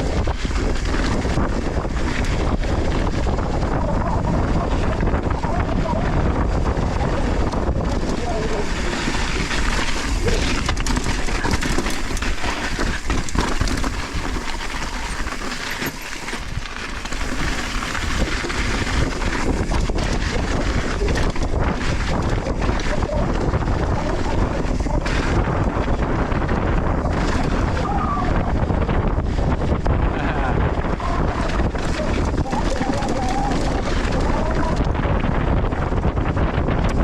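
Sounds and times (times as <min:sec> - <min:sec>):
bike rattling: 0:00.0 - 0:37.0
wind buffeting microphone: 0:00.0 - 0:37.0
tyres crunching on soil: 0:08.0 - 0:20.0.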